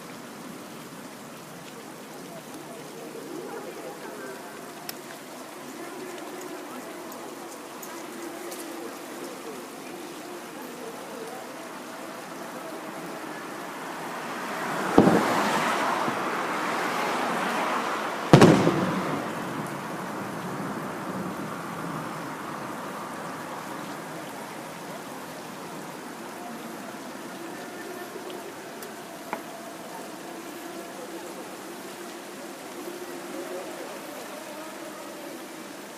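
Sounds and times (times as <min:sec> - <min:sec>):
fireworks bursting: 0:14.9 - 0:15.6, 0:18.3 - 0:19.8.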